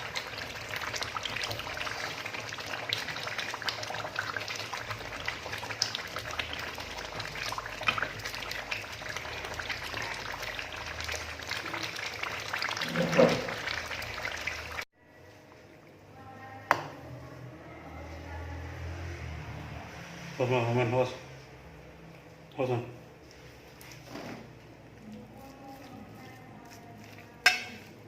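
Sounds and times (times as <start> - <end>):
liquid bubbling in a pot: 0.0 - 16.0.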